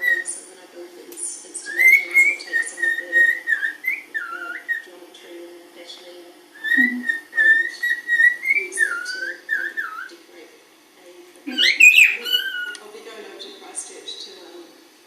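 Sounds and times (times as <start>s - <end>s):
cockatiel whistling: 0.0s - 0.3s, 1.6s - 4.9s, 6.6s - 10.1s, 11.5s - 12.8s.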